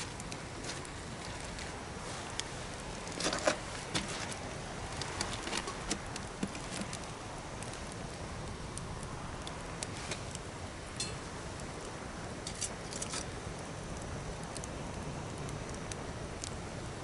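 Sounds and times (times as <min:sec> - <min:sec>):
campfire hissing: 0:00.0 - 0:17.0
fire pops and snaps: 0:00.0 - 0:17.0.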